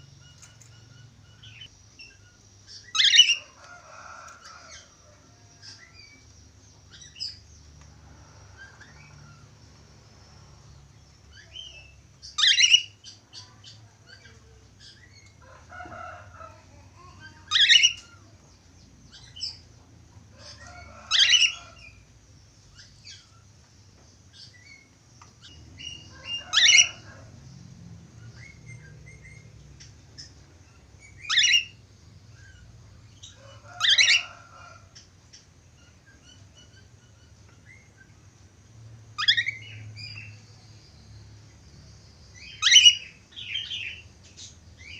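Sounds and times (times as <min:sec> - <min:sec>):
parakeet chirping: 0:00.2 - 0:03.5, 0:11.3 - 0:15.1, 0:17.0 - 0:18.2, 0:25.4 - 0:27.2, 0:28.2 - 0:31.8, 0:39.2 - 0:40.4, 0:42.3 - 0:44.0.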